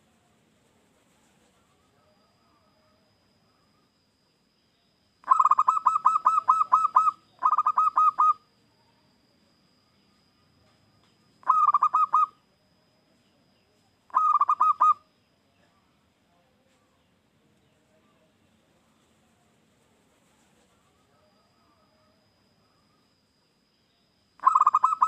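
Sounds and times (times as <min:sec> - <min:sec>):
dove cooing: 0:05.2 - 0:08.4, 0:11.4 - 0:12.4, 0:14.1 - 0:15.0, 0:24.4 - 0:25.0.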